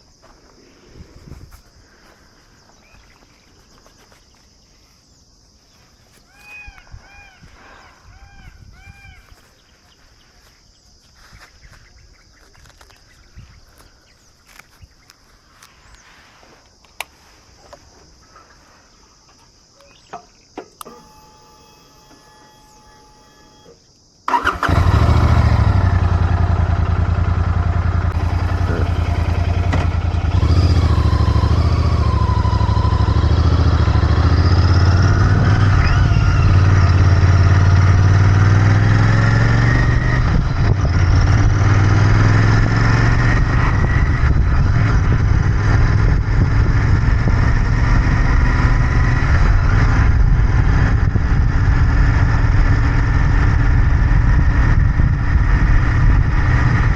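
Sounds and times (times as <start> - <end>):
motorcycle engine starting and idling: 20.6 - 56.9.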